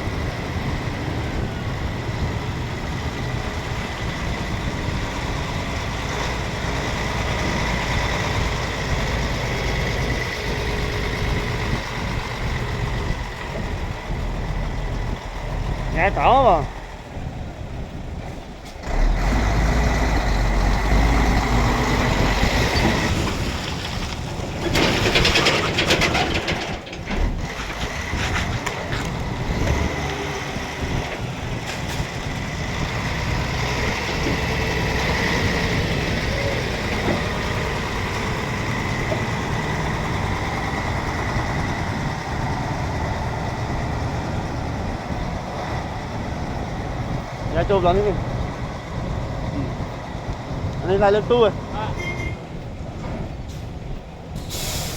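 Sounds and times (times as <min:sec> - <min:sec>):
truck engine rumble: 0:00.0 - 0:54.9
loud air hiss: 0:54.4 - 0:54.9.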